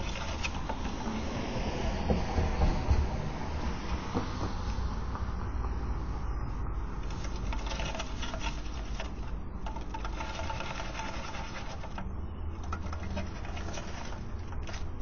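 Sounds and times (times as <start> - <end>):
bird scrabbling and flapping: 0.0 - 1.3, 7.0 - 15.0.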